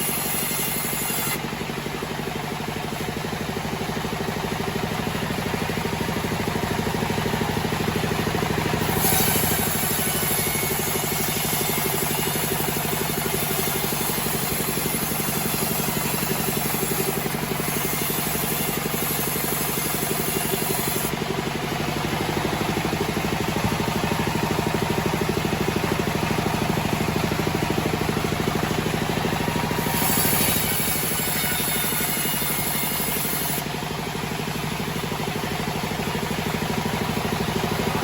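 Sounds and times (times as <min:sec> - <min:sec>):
sawmill engine running: 0:00.0 - 0:38.0.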